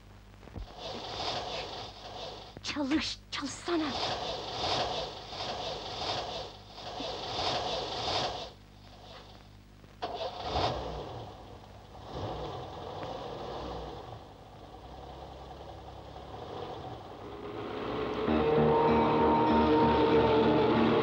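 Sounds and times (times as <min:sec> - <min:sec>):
car starter cranking: 0:10.0 - 0:18.3
car engine revving: 0:10.0 - 0:21.0.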